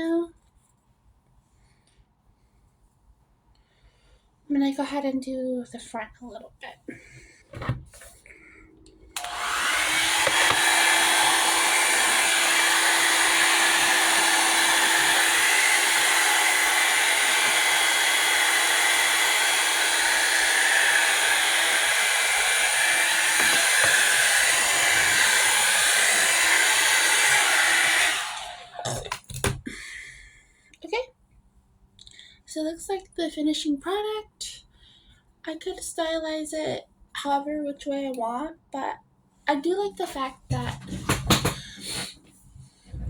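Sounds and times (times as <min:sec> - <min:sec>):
hot-air brush dryer blowing: 0:08.7 - 0:29.6, 0:41.1 - 0:42.2.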